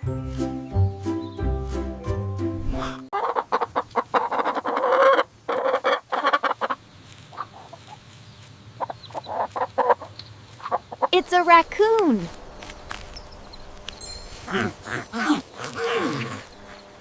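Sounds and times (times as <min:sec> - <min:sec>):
hens clucking: 0:03.2 - 0:11.2
short jingle: 0:14.0 - 0:14.4.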